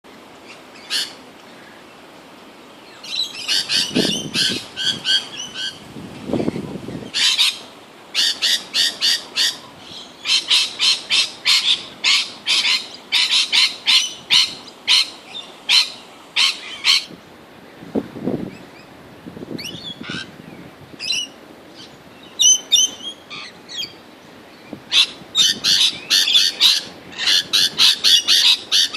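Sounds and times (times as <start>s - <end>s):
parrots screeching: 10.2s - 15.1s, 15.7s - 17.1s, 24.9s - 28.9s.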